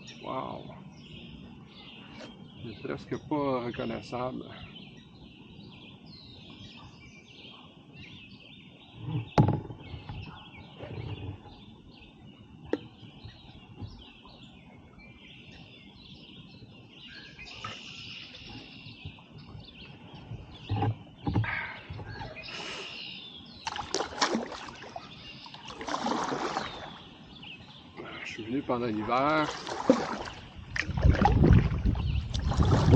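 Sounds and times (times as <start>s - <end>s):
small birds chirping: 0.0s - 32.9s
kayak paddle splashes: 23.6s - 27.2s, 28.9s - 32.9s.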